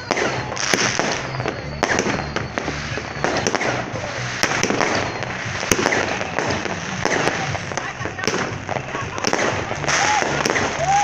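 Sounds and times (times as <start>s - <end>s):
firecrackers crackling: 0.0s - 11.0s
firework bangs: 0.0s - 11.0s.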